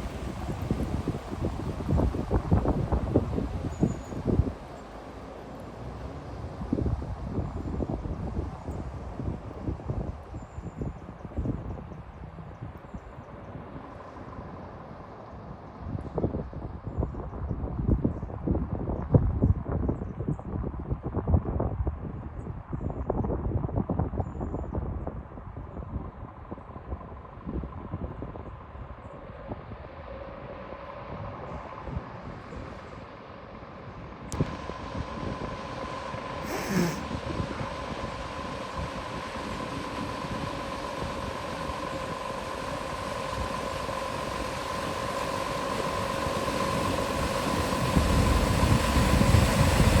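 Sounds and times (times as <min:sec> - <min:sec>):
wind buffeting microphone: 0:00.0 - 0:04.7, 0:06.1 - 0:30.5
vehicle low rumble: 0:00.0 - 0:50.0
steady hum: 0:34.4 - 0:50.0.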